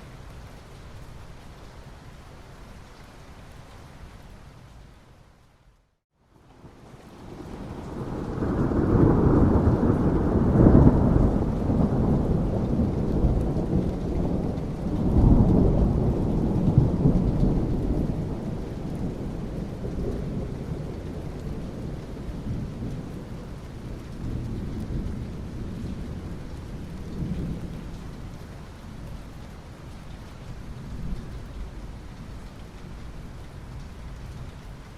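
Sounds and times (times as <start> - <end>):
steady rain: 0.0 - 34.9
thunder rumbling: 7.2 - 28.3.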